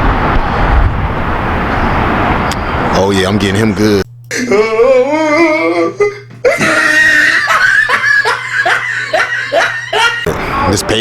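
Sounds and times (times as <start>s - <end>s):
steady low hum: 0.0s - 11.0s
person laughing hard: 4.3s - 10.4s.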